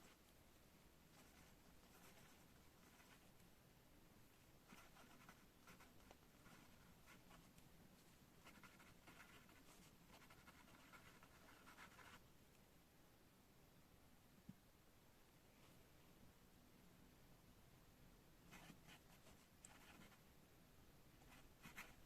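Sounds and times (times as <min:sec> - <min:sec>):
pen scratching on paper: 0:01.2 - 0:03.2, 0:04.7 - 0:07.4, 0:08.4 - 0:12.2, 0:18.5 - 0:20.2, 0:21.2 - 0:22.0.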